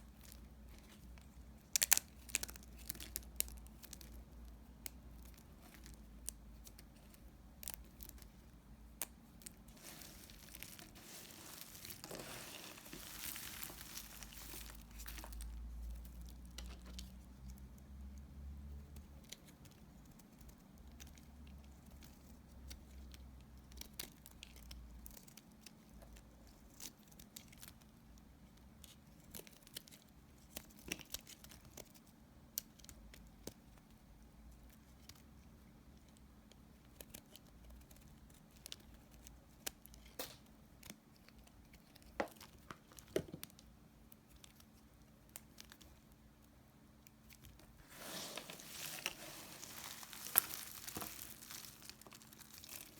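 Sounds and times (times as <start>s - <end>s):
crumbly crunching: 9.0s - 16.9s, 47.2s - 52.9s.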